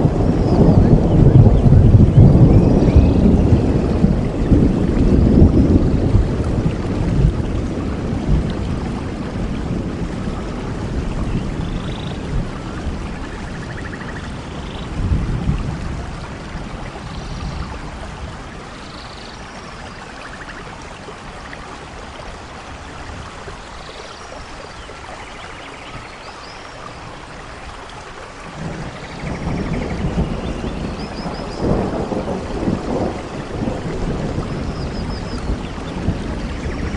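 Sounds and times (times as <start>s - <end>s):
low rolls of thunder: 0.0s - 18.8s, 28.4s - 36.9s
steady rain: 0.0s - 36.9s.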